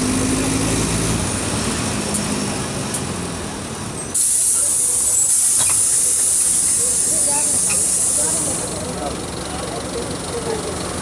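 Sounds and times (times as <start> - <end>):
bus diesel engine running: 0.0 - 11.0
loud air hiss: 4.2 - 8.8.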